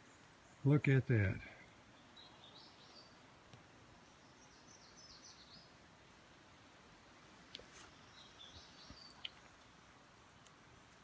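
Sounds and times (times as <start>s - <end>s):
faint birdsong: 0.0s - 11.0s
faint clicks: 8.9s - 9.7s, 10.4s - 11.0s.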